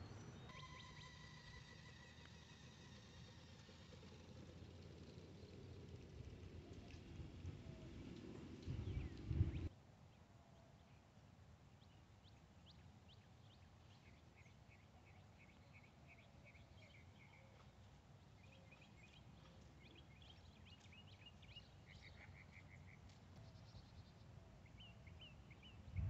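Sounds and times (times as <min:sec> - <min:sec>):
faint birds chirping: 0:00.0 - 0:26.0
low faint rumble: 0:03.2 - 0:09.7.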